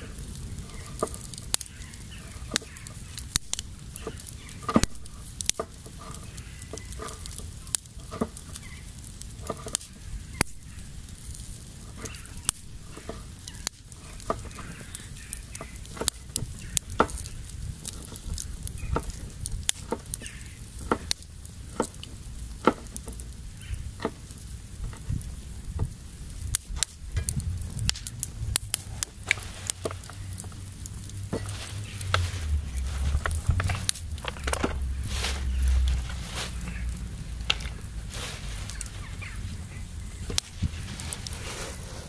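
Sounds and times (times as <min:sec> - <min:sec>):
campfire pops and snaps: 0:00.0 - 0:41.7
fire low rumble: 0:00.0 - 0:42.0
faint hiss: 0:37.7 - 0:42.0.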